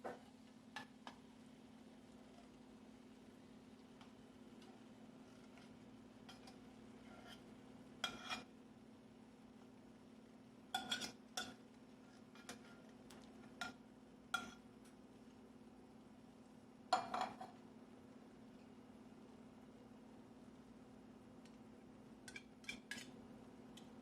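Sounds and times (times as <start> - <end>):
faint steady hum: 0.0 - 24.0
metal utensil clinking on cookware: 10.8 - 11.6.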